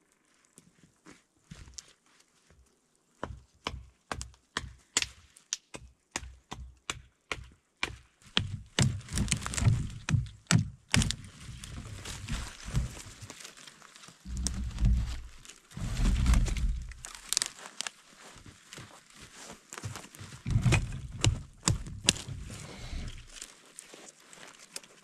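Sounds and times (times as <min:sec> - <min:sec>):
sharp crunching and cracking impacts: 0:08.2 - 0:25.0.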